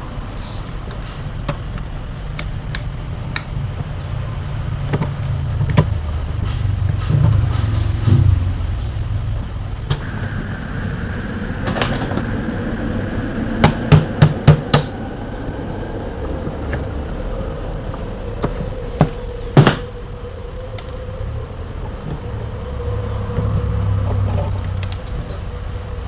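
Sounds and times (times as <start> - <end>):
steady low rumble: 0.0 - 26.0
tools knocking on fan parts: 11.6 - 12.3, 13.6 - 15.0, 18.4 - 19.9.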